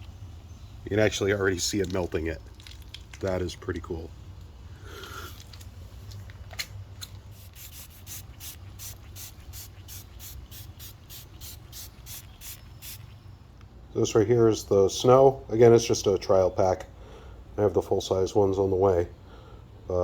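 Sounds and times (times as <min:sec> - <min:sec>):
trigger spray bottle squirting: 0:07.3 - 0:13.2.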